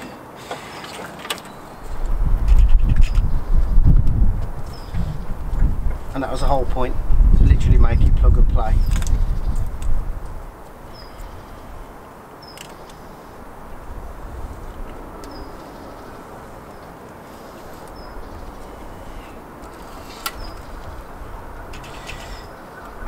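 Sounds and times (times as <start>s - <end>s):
wind rumble on microphone: 1.8s - 12.3s, 13.0s - 23.0s
bird chirping: 4.6s - 5.3s, 10.9s - 11.6s, 14.8s - 23.0s
wiring clicks and rustles: 16.6s - 23.0s.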